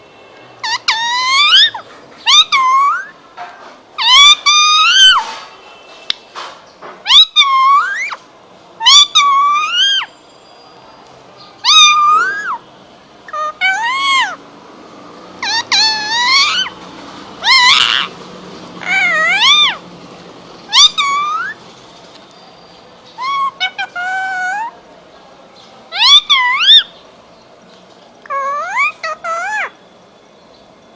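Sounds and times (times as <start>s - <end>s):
parrot calling: 0.6s - 3.2s, 4.0s - 5.3s, 7.0s - 10.2s, 11.6s - 14.5s, 15.4s - 19.9s, 20.6s - 21.6s, 23.1s - 24.8s, 25.9s - 27.0s, 28.2s - 29.8s.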